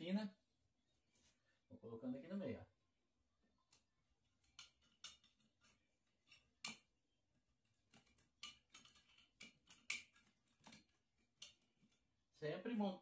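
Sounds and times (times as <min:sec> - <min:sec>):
wooden sticks clicking together: 0:03.7 - 0:06.9, 0:07.8 - 0:12.0.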